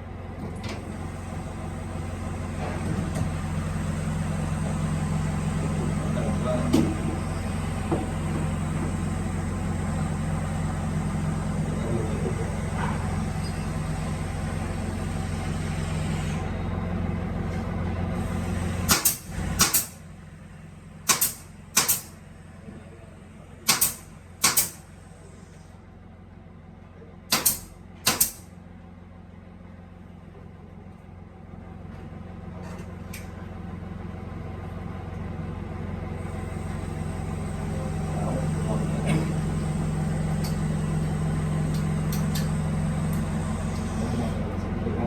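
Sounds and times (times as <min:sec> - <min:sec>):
drilling machine motor hum: 0:00.8 - 0:16.8, 0:18.2 - 0:25.6, 0:36.2 - 0:45.0.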